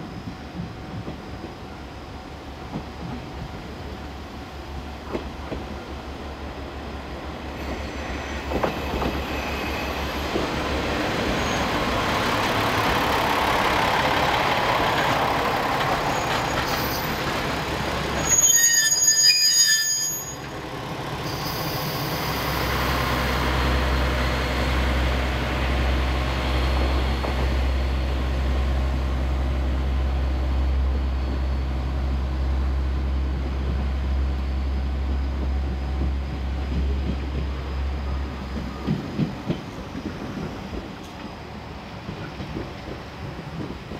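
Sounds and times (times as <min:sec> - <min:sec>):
freight train passing: 0:00.0 - 0:43.9
wheel squeal on rails: 0:07.6 - 0:10.5, 0:11.2 - 0:11.9, 0:16.0 - 0:17.3, 0:18.2 - 0:20.6, 0:21.2 - 0:22.8.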